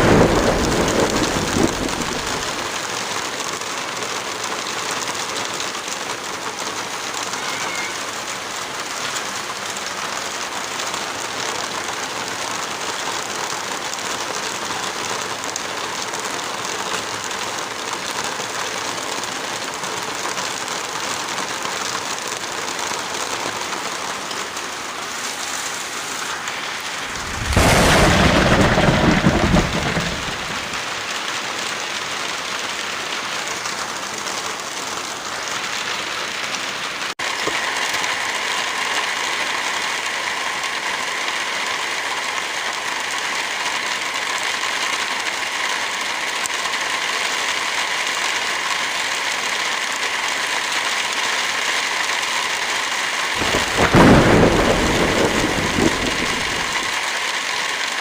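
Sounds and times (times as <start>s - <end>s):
heavy rain: 0.0s - 58.0s
loud rumbling rush: 25.6s - 30.9s, 53.4s - 56.9s.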